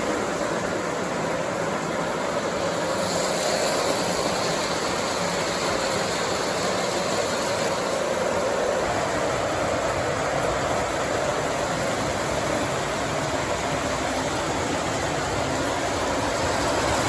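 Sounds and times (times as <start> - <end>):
model train rolling on track: 0.0 - 17.0.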